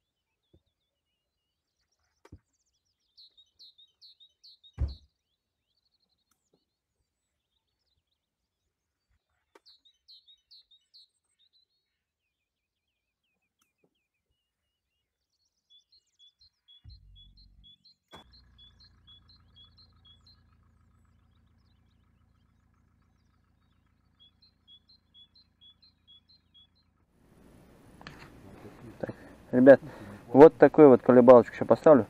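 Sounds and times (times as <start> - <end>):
small bird chirping: 0.0 - 27.1
low steady hum: 16.9 - 32.0.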